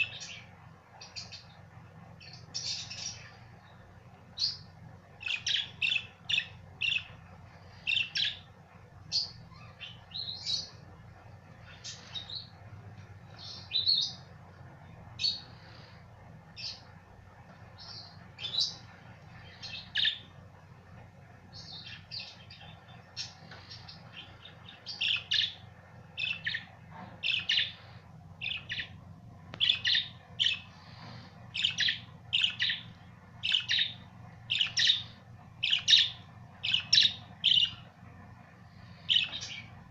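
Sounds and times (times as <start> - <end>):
budgerigars chirping: 2.2 - 3.4, 4.4 - 8.5, 9.1 - 10.8, 17.8 - 20.3, 21.6 - 25.6, 26.2 - 29.0, 29.6 - 37.9, 38.8 - 39.8.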